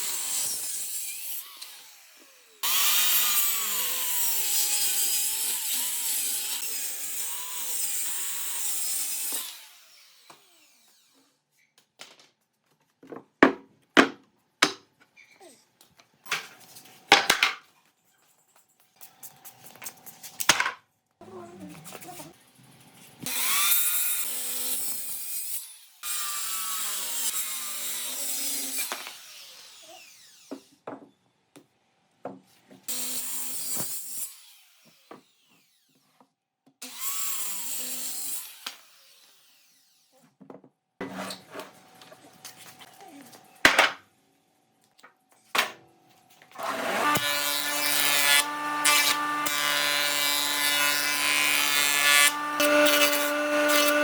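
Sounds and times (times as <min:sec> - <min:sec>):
power tool working wood: 0:00.0 - 0:11.2, 0:46.6 - 0:54.0.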